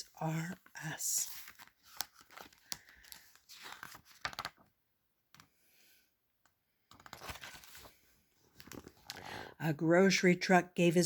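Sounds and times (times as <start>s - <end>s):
paper rustling: 0.4s - 4.7s, 6.9s - 9.2s.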